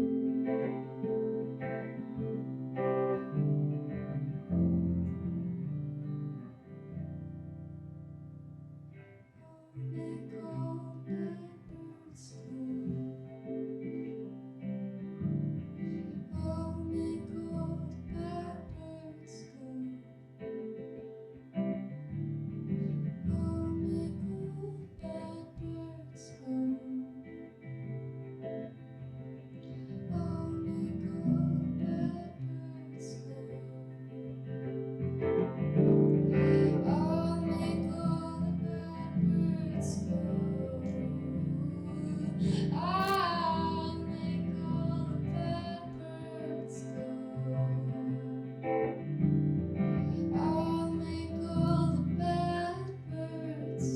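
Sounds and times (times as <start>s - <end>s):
acoustic guitar chords: 0.0s - 53.9s
person singing: 9.4s - 14.3s, 15.8s - 20.2s, 22.8s - 28.0s, 29.6s - 34.6s, 35.6s - 53.9s.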